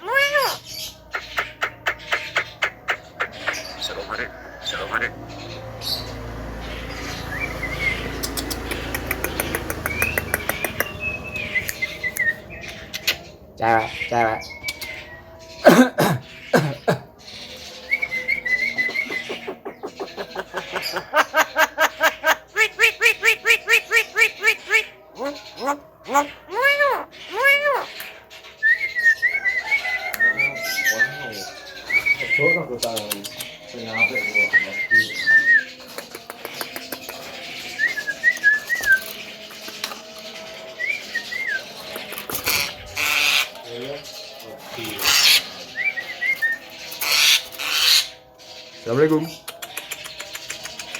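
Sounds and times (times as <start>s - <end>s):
myna calling: 0.0s - 6.1s, 18.7s - 28.0s, 41.4s - 43.6s
bird whistling: 7.3s - 13.2s, 14.4s - 15.3s, 17.9s - 19.4s, 28.6s - 32.9s, 33.9s - 35.8s, 37.7s - 39.2s
bird clicks: 8.2s - 11.0s, 35.8s - 37.3s, 38.9s - 40.0s, 41.8s - 42.6s, 49.4s - 50.9s.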